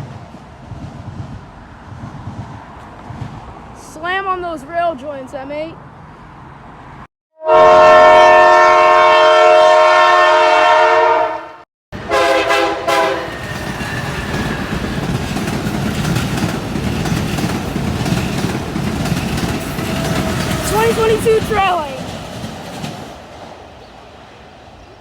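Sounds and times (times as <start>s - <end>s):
train horn blasts: 7.4s - 13.6s, 19.8s - 21.4s
train wheels clattering over rails: 12.9s - 23.9s.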